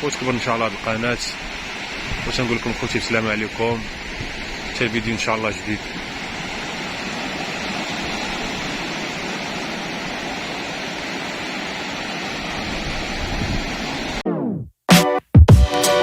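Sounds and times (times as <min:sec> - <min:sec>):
sea surf rushing: 0:00.0 - 0:14.2
wind on microphone: 0:00.7 - 0:14.2
electronic music: 0:14.2 - 0:16.0.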